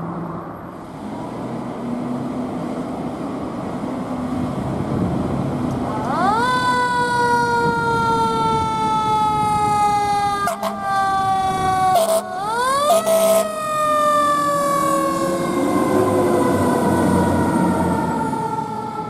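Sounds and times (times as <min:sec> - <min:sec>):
low vehicle rumble: 0:00.0 - 0:19.0
siren wailing: 0:05.8 - 0:19.0
short loud siren blasts: 0:05.9 - 0:19.0.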